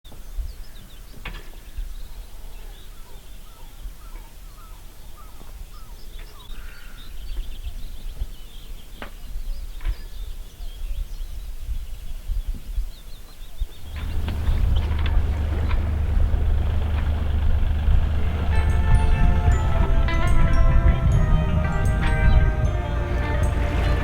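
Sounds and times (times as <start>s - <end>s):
wind on microphone: 9.5s - 24.0s.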